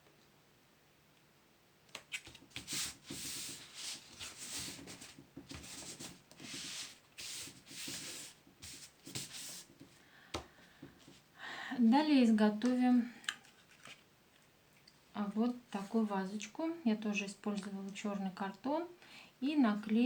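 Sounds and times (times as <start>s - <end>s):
hands rubbing cardboard: 1.9s - 10.0s.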